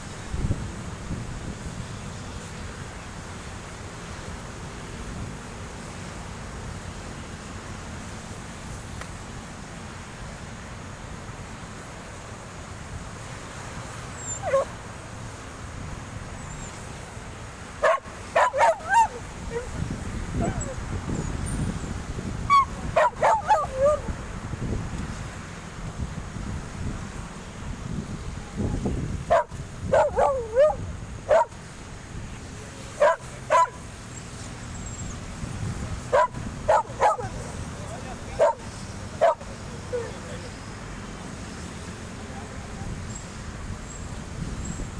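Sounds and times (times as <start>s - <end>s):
dog yelping: 14.2s - 14.7s, 17.8s - 20.8s, 22.5s - 24.1s, 29.3s - 31.5s, 33.0s - 33.8s, 36.1s - 40.4s
dog barking: 14.3s - 14.7s, 17.8s - 20.8s, 22.5s - 24.1s, 29.3s - 31.6s, 32.9s - 33.8s, 36.1s - 40.2s.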